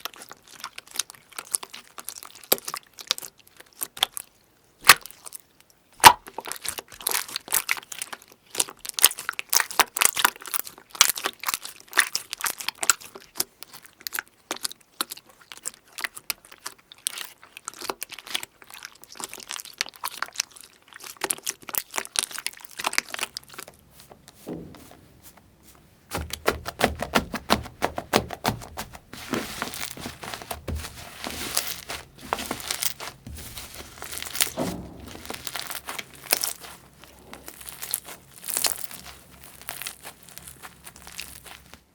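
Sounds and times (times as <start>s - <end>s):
slime crackling and popping: 26.1s - 41.9s.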